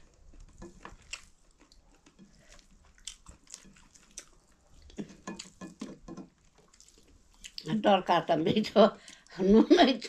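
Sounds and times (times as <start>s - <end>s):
chewing: 0.0s - 7.7s.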